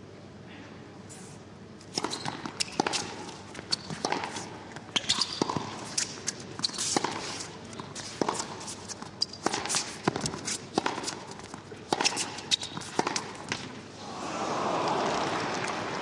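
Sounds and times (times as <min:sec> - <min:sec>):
tennis ball hit by rackets: 0:01.9 - 0:06.1, 0:08.1 - 0:13.8.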